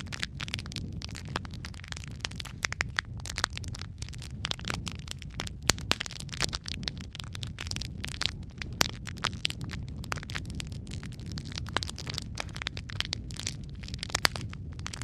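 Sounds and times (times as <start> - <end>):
fire pops and snaps: 0.0 - 15.0
low rumble of burning fire: 0.0 - 15.0.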